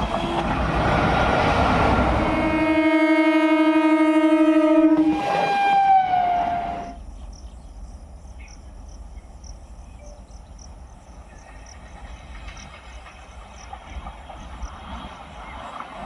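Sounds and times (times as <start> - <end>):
train horn: 0.0 - 7.0
insects chirping: 6.4 - 15.9.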